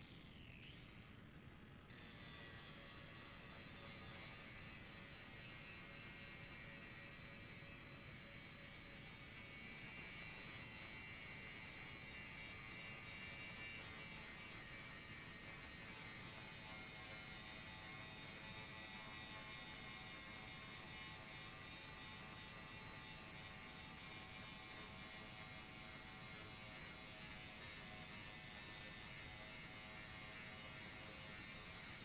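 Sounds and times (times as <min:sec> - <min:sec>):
power grinder grinding metal: 0:01.9 - 0:32.0.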